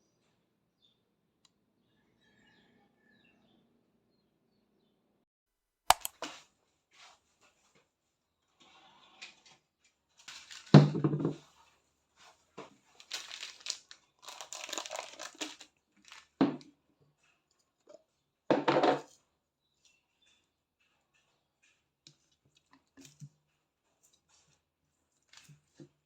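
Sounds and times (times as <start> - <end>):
crinkling and rustling: 8.6 - 18.2, 19.8 - 26.0.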